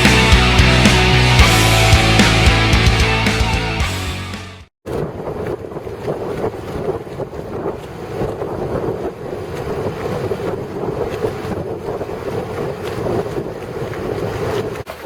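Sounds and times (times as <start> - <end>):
wind buffeting microphone: 4.9 - 14.9
water rushing along hull: 4.9 - 15.0.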